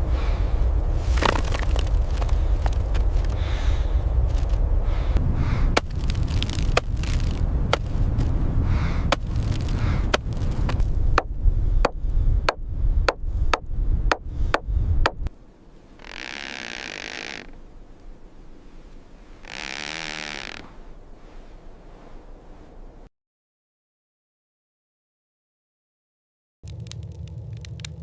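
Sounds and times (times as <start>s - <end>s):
heavy low rumble: 0.0s - 15.9s, 26.6s - 28.0s.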